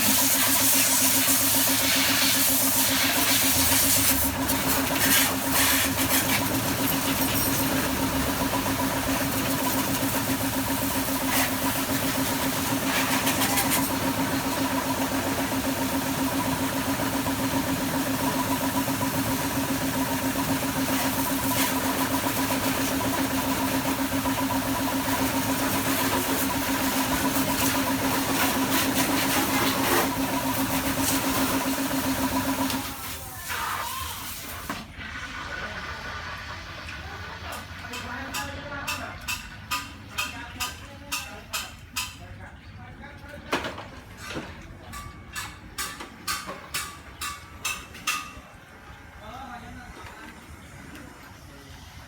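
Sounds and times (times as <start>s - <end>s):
motor running steadily: 0.0s - 33.1s.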